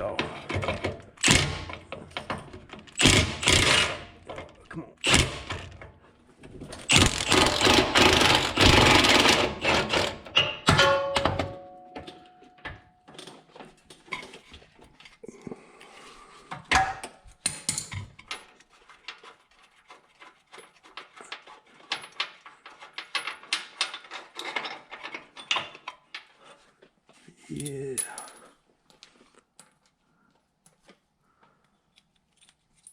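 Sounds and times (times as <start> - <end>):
ringing metal clank: 10.4 - 13.0.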